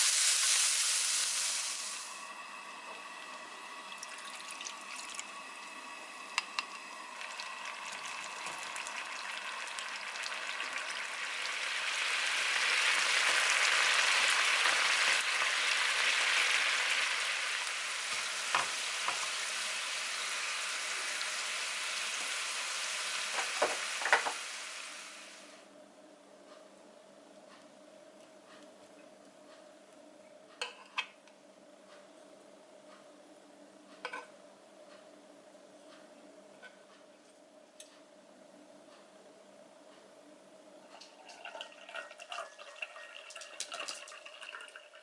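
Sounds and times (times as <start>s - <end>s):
food sizzling in a frying pan: 0.0s - 25.6s.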